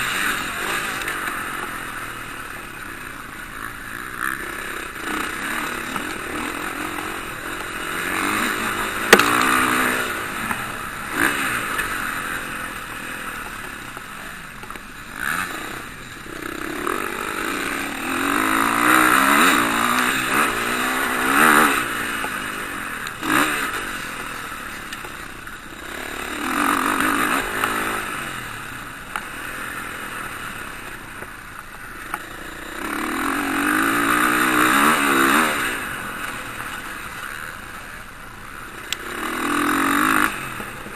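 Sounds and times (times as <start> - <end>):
motocross bikes racing past: 0.0 - 40.9
sharp clack: 8.4 - 9.8.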